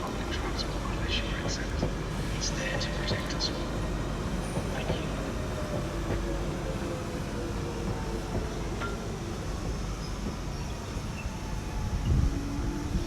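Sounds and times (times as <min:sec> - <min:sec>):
underground train rumbling: 0:00.0 - 0:13.0.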